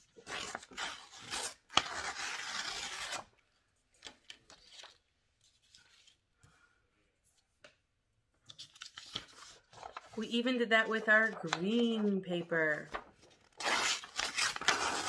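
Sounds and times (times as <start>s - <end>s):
paper tearing: 0.1s - 3.3s, 13.5s - 15.0s
faint paper rustles: 8.5s - 15.0s.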